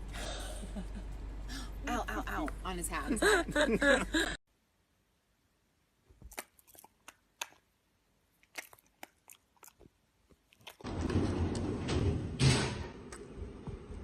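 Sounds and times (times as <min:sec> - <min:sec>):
dog crunching food: 0:06.1 - 0:07.7, 0:08.3 - 0:11.2.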